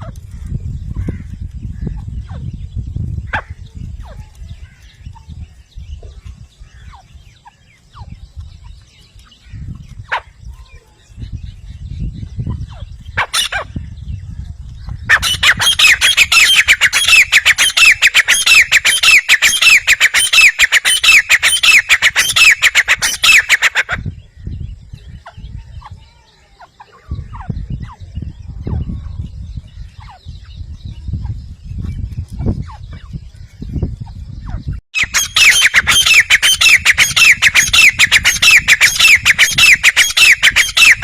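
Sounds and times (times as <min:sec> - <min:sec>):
francolin calling: 0:15.0 - 0:31.2, 0:32.6 - 0:41.0.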